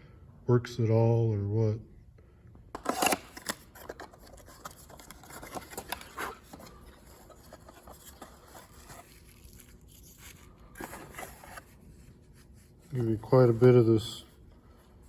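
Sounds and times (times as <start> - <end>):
packaging rustling and clicking: 2.8 - 11.8.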